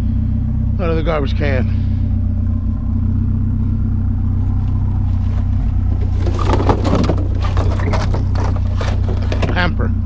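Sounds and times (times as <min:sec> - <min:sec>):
engine idling: 0:00.0 - 0:10.0
clattering knocks: 0:05.2 - 0:09.8.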